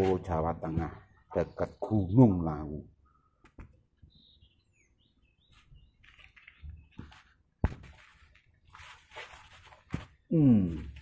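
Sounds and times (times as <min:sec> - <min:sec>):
faint bird chirps: 0:00.9 - 0:07.4
soft rustling: 0:05.5 - 0:11.0.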